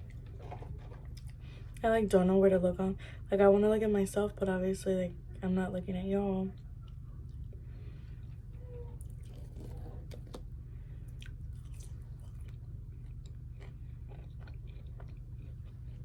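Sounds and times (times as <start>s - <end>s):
person chewing food: 0.0s - 1.8s, 6.6s - 16.0s
low hum: 0.0s - 16.0s
crunchy bites: 11.1s - 16.0s.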